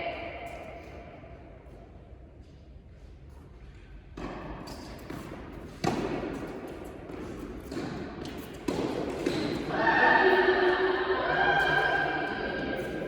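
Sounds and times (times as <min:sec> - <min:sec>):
tennis ball hits and bounces: 0:04.2 - 0:09.7.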